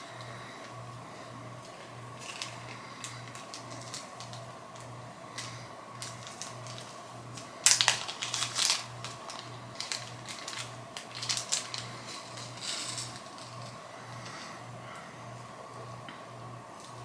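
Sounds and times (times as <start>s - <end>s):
packaging rustling and crinkling: 1.6s - 13.8s.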